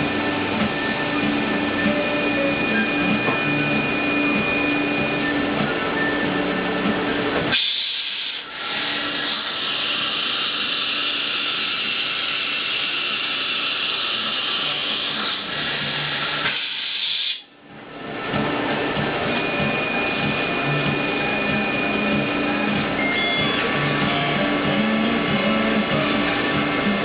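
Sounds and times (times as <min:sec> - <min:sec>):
low machine hum: 0:00.0 - 0:07.6, 0:17.5 - 0:27.0
high-pitched machine rasping: 0:00.0 - 0:17.5, 0:19.2 - 0:27.0.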